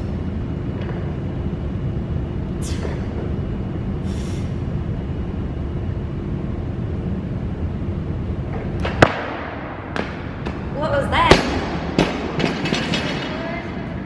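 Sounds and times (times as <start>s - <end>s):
faint steady hum: 0.0s - 14.0s
steady low rumble: 0.0s - 14.0s.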